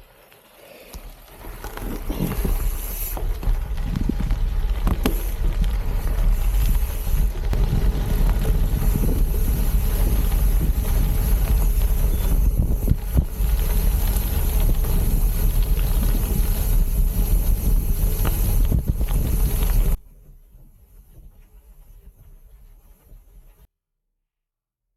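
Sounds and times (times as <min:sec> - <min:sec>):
tyres rolling on rough trail: 0:00.0 - 0:23.7
bike knocks and rattles: 0:01.0 - 0:23.7
wind buffeting microphone: 0:03.2 - 0:20.0.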